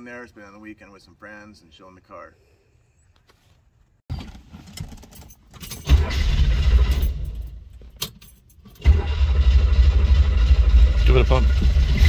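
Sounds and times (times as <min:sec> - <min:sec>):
car engine rumble: 0:04.1 - 0:12.0
keys jangling in ignition: 0:04.9 - 0:06.0, 0:06.9 - 0:08.8.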